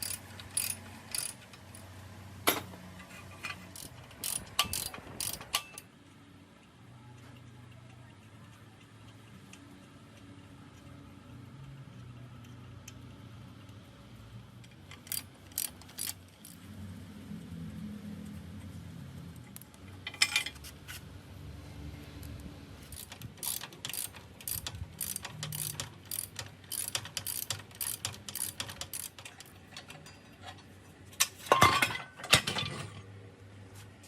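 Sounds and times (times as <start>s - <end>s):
metallic tool clicks: 0.0s - 1.9s, 3.8s - 5.9s, 14.6s - 16.6s, 22.2s - 30.2s
metal clatter: 19.9s - 21.0s, 22.9s - 33.1s.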